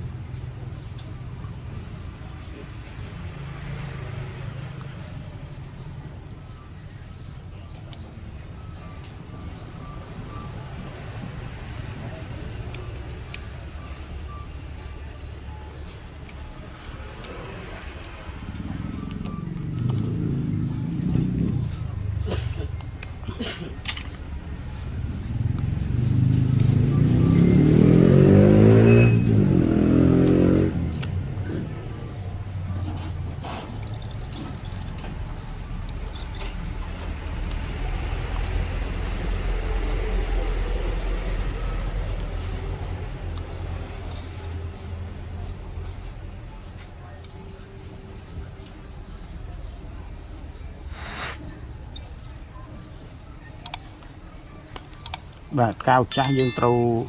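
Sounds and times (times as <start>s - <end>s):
hand tools clicking and scraping: 22.0s - 24.2s.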